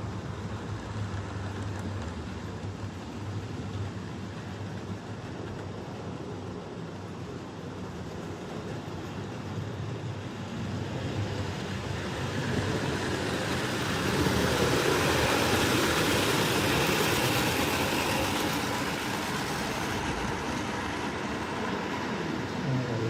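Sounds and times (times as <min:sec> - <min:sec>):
model train running on track: 0:00.0 - 0:23.0.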